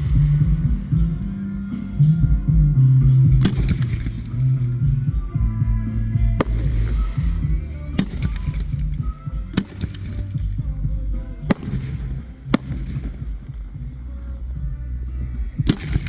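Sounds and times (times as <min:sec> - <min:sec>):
music playing: 0:00.0 - 0:16.0
fireworks bangs: 0:06.4 - 0:10.5, 0:11.4 - 0:14.1, 0:15.7 - 0:16.0.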